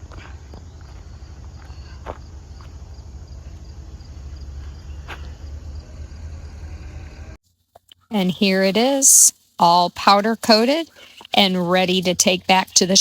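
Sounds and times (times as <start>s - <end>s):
steady low rumble: 0.0s - 7.4s.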